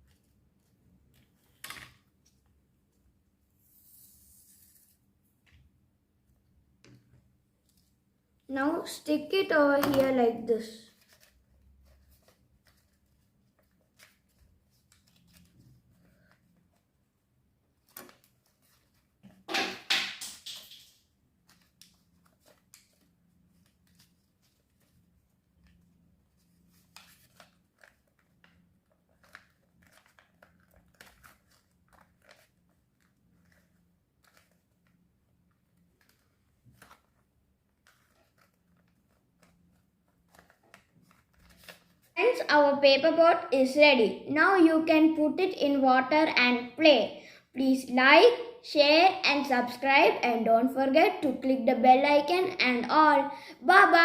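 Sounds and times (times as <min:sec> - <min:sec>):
paper rustling and crinkling: 0:09.7 - 0:16.9, 0:17.8 - 0:19.4, 0:20.4 - 0:42.2.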